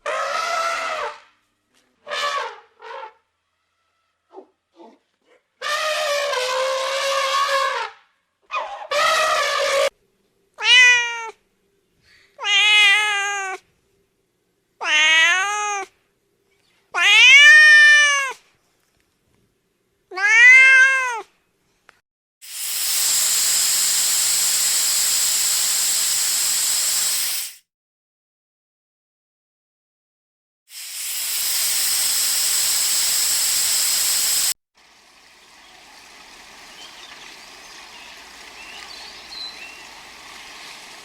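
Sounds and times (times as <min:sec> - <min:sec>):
cat meowing: 0:10.6 - 0:11.4, 0:12.4 - 0:13.6, 0:14.8 - 0:15.9, 0:17.0 - 0:18.4, 0:20.1 - 0:21.3
steady hiss: 0:22.4 - 0:27.6, 0:30.7 - 0:35.0.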